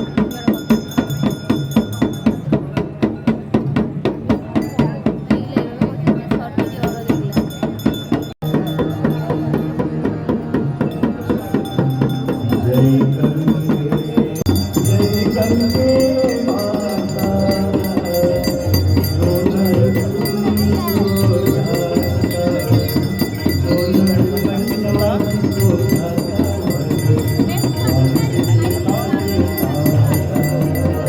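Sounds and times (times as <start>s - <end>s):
bright ringing bells: 0.0s - 2.6s, 6.6s - 9.7s, 10.8s - 31.0s
rhythmic rattling percussion: 0.0s - 31.0s
devotional singing: 11.6s - 31.0s.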